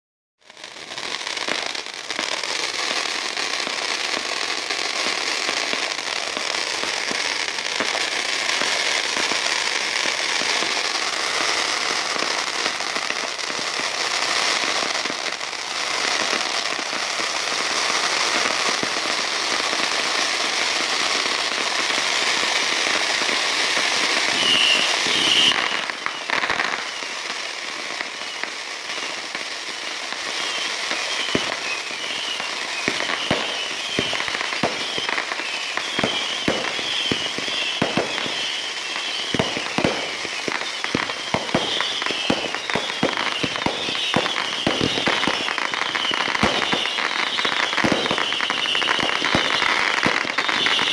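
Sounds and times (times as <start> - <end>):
fireworks crackling and popping: 0.4 - 50.9
loud firework burst: 13.4 - 50.9.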